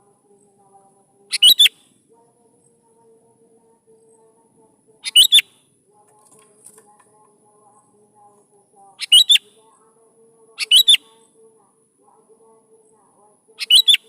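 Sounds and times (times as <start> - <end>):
faint steady hum: 0.0 - 14.0
bird singing whistled notes: 1.3 - 1.8, 5.0 - 5.5, 9.0 - 9.5, 10.6 - 11.2, 13.6 - 14.0.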